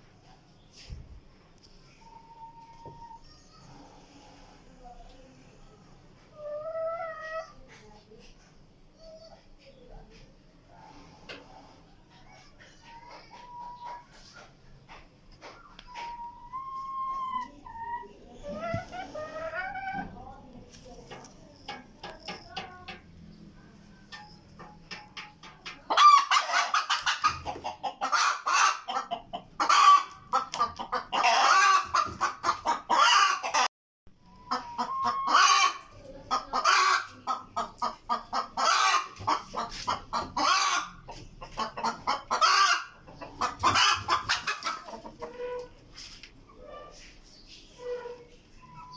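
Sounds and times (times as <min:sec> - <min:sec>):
hen cackling: 0:34.5 - 0:45.3.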